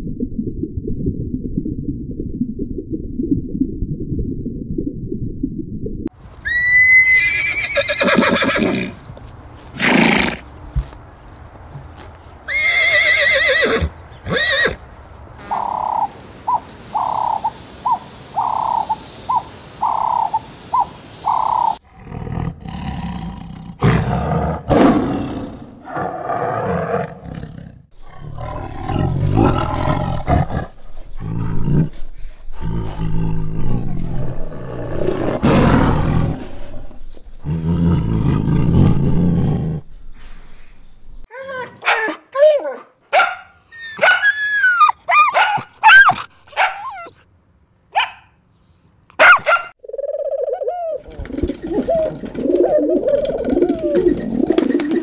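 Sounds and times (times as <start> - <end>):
horse whinnying: 6.4 - 9.0, 12.5 - 14.8, 45.8 - 47.2
tiger roaring and growling: 21.8 - 40.0.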